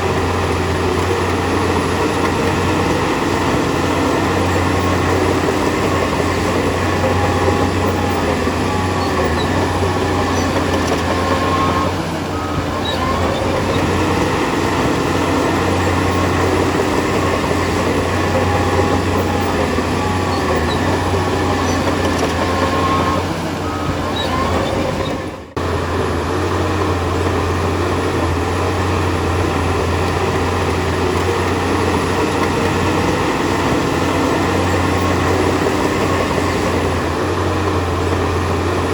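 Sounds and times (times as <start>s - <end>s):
bulldozer engine humming: 0.0s - 38.9s
faint squeals: 0.8s - 25.6s.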